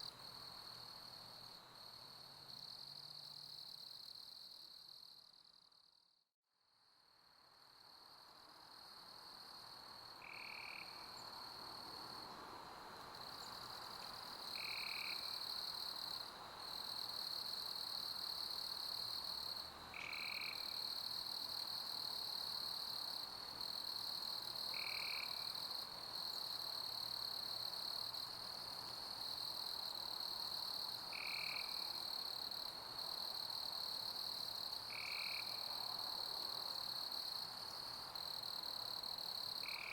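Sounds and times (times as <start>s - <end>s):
crickets chirping: 7.6s - 39.9s.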